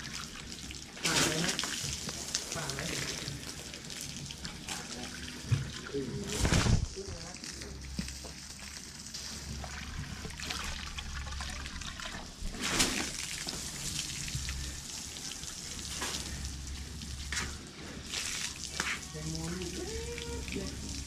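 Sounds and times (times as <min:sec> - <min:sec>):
water gushing: 0:00.0 - 0:21.0
water splashing and trickling: 0:00.0 - 0:21.0.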